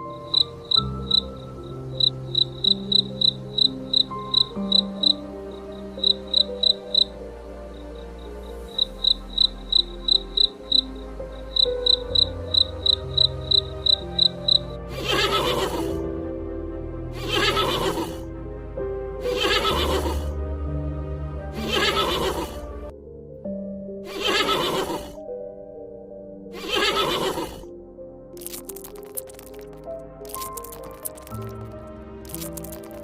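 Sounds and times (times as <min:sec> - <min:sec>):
soft background music: 0:00.0 - 0:33.0
cricket chirping: 0:00.1 - 0:15.8
horse neighing: 0:14.9 - 0:16.0, 0:17.2 - 0:18.2, 0:19.2 - 0:20.3, 0:21.6 - 0:22.6, 0:24.1 - 0:25.2, 0:26.6 - 0:27.6.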